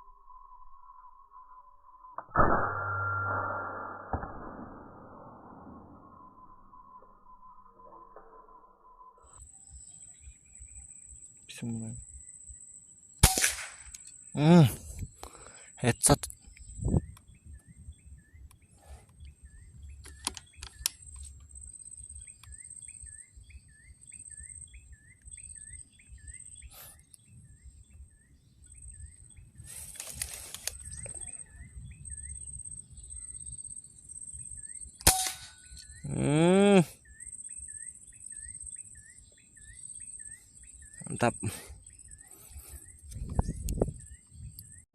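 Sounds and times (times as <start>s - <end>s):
bird chirping: 6.2s - 13.2s, 13.9s - 44.9s
insects buzzing: 6.4s - 44.5s
air rifle shot: 13.2s - 13.9s, 35.0s - 35.5s.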